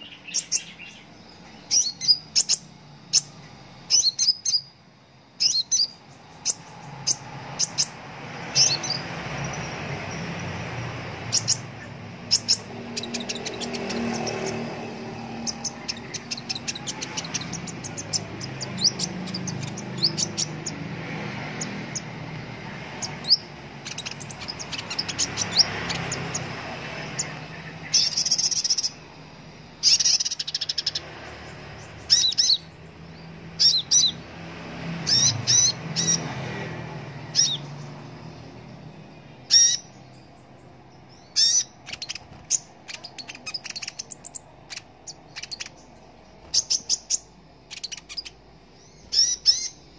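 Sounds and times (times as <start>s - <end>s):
sunbird chirping and twittering: 0.0s - 49.9s
bird rapid chatters: 5.4s - 29.2s, 29.8s - 34.2s, 35.0s - 36.4s, 39.4s - 40.0s, 41.1s - 49.9s.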